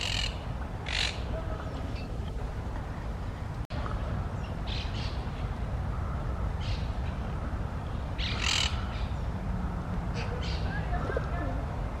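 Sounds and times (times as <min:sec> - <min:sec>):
birds calling harshly: 0:00.0 - 0:02.2, 0:04.3 - 0:11.5.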